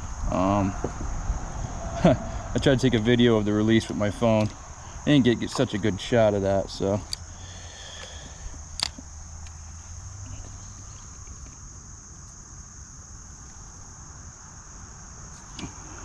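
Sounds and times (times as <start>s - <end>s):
low rumble: 0.0s - 5.2s
insects trilling: 0.0s - 16.0s.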